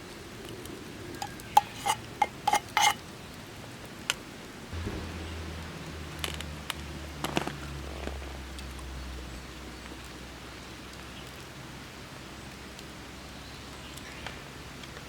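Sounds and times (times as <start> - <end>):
metal cookware clinking: 1.2 - 3.0
steady low hum: 4.8 - 11.7.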